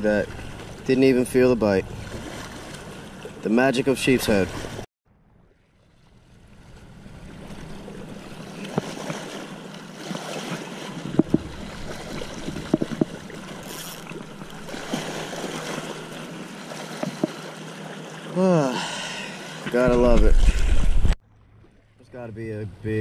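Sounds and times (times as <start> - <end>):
water washing: 6.2 - 19.0
sharp clicks and knocks: 11.1 - 11.5, 12.4 - 14.2
wind noise: 19.9 - 21.2.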